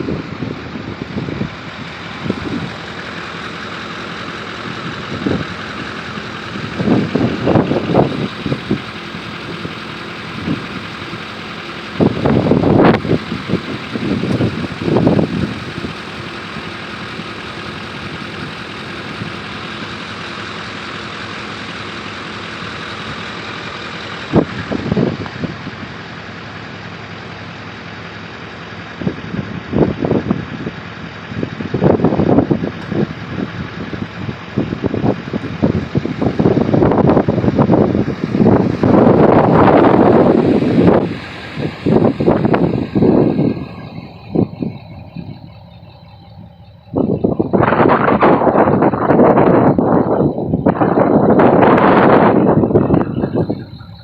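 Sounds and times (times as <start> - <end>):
strong wind blowing: 0.0 - 10.9, 12.0 - 16.1, 24.3 - 25.8, 29.0 - 54.0
wind buffeting microphone: 0.0 - 19.5, 24.2 - 25.9, 28.9 - 54.0.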